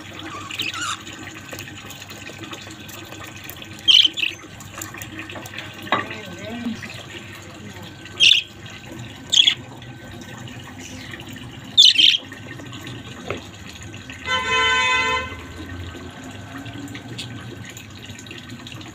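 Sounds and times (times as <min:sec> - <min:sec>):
budgerigar chirping: 0:00.3 - 0:01.0, 0:03.9 - 0:04.4, 0:08.2 - 0:08.5, 0:09.3 - 0:09.6, 0:11.8 - 0:12.2.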